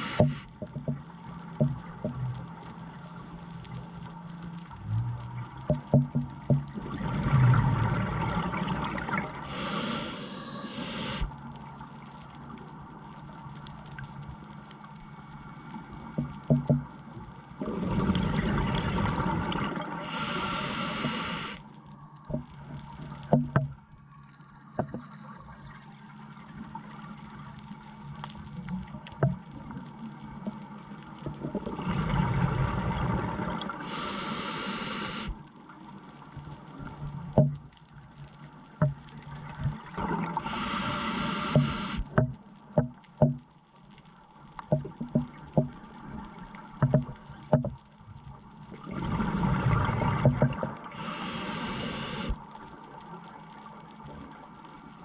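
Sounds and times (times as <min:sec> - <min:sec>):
diver breathing through regulator: 0:00.0 - 0:00.5, 0:09.5 - 0:11.3, 0:20.0 - 0:21.6, 0:33.8 - 0:35.4, 0:40.4 - 0:42.0, 0:50.9 - 0:52.4
faint steady hum: 0:00.0 - 0:55.0
exhaled bubbles: 0:17.6 - 0:21.6
small clicks: 0:40.4 - 0:48.0.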